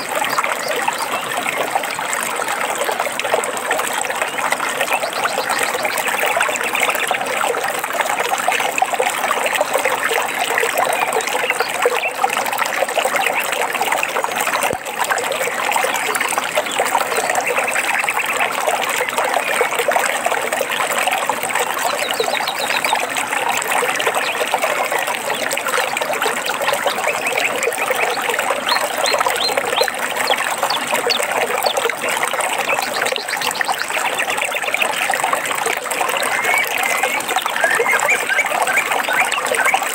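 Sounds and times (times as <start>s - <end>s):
stream trickling and babbling: 0.0s - 39.9s
faint high bird chirps: 36.2s - 39.9s.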